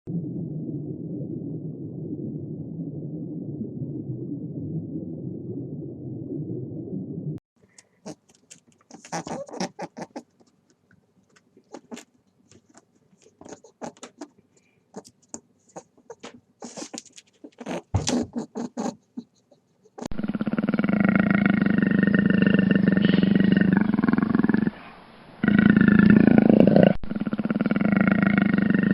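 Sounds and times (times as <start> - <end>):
animal's loud continuous call: 8.0 - 10.4, 20.0 - 28.9.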